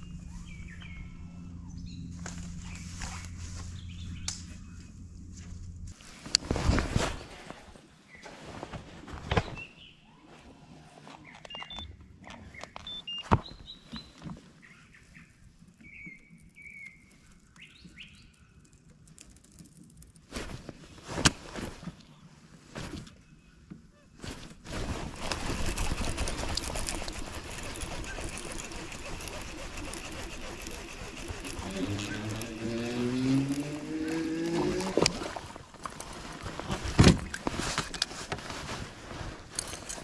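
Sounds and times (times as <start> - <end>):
small birds chirping: 0.0 - 5.0, 11.2 - 19.0.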